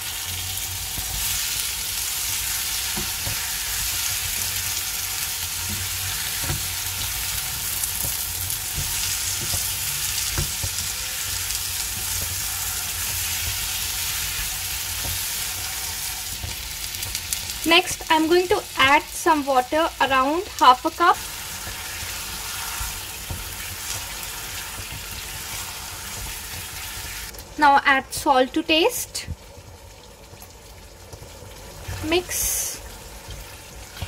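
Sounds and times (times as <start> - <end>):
paneer sizzling in a frying pan: 0.0 - 34.0
spatula tapping pan: 8.0 - 11.1.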